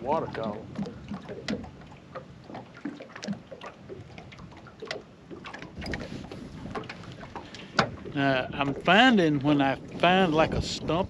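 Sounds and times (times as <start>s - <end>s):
water lapping against boat: 0.0s - 11.0s
wind rumbling on microphone: 0.0s - 11.0s.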